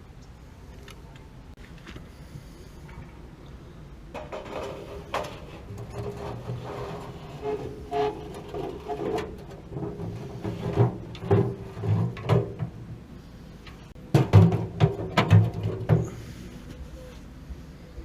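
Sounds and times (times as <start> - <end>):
faint steady hum: 0.0 - 18.0
tools and metal parts clattering: 4.2 - 12.7.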